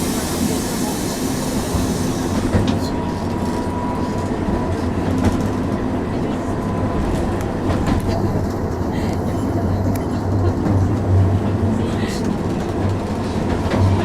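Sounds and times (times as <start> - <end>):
tram motor hum: 0.0 - 14.0.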